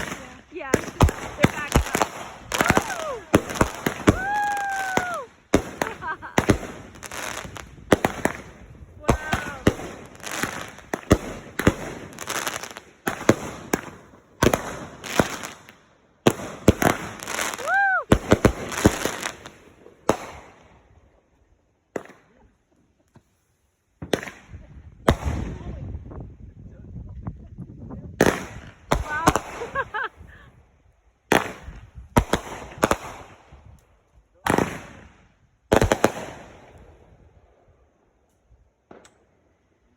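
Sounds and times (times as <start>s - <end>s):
fireworks bangs: 0.0s - 20.7s, 24.0s - 25.8s, 28.2s - 30.4s, 31.3s - 33.6s, 34.4s - 37.0s
fireworks crackling: 0.0s - 20.8s, 23.2s - 25.8s, 28.2s - 30.4s, 31.3s - 37.1s.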